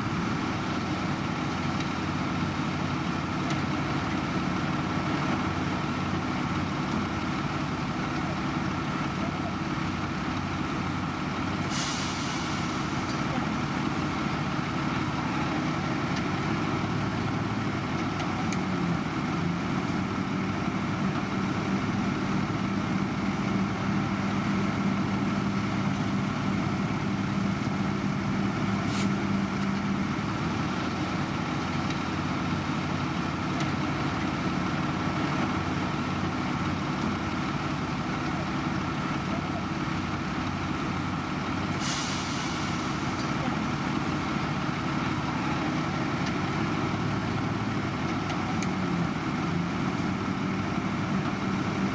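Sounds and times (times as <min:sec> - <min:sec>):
diesel machinery running: 0:00.0 - 0:51.9
air brake hiss: 0:11.7 - 0:13.0, 0:41.8 - 0:43.1.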